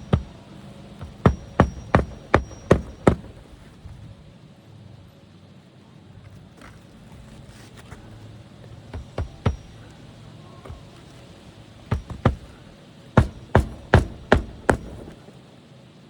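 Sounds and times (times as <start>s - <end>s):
sharp knocks: 0.0s - 3.7s, 7.8s - 15.3s.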